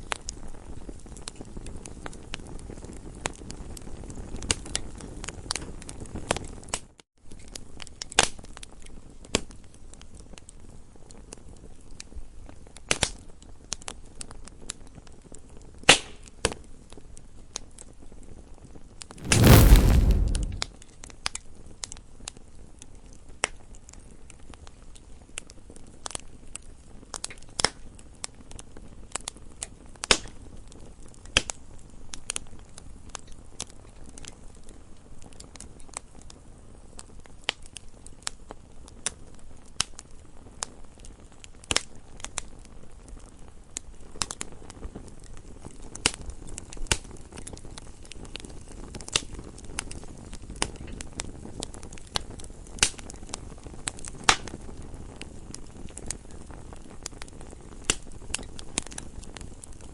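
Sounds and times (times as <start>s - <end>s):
campfire crackling: 19.2s - 20.7s
low steady hiss: 19.2s - 20.7s.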